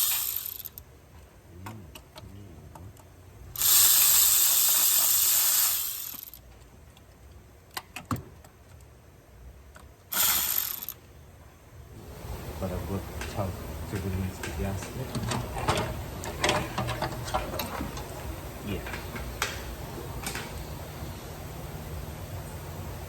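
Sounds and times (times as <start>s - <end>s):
loud hissing bursts: 0.0s - 0.8s, 3.6s - 6.4s
ratchet wrench clicking: 0.0s - 0.8s, 3.6s - 6.5s, 10.1s - 11.0s.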